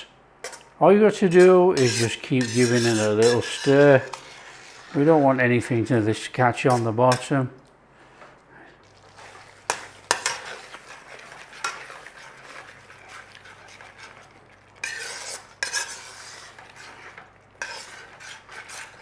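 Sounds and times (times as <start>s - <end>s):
spoon scraping a pan: 0.4s - 7.4s, 8.1s - 19.0s
sauce bubbling and sizzling: 2.6s - 6.8s, 8.8s - 19.0s.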